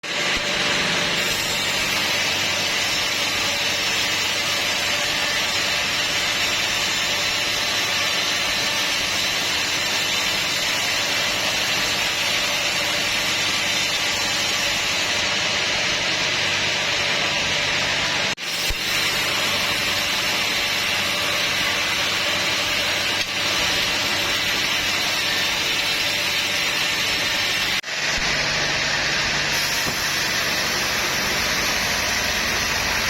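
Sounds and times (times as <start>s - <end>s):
sawmill saw cutting log: 0.0s - 33.0s.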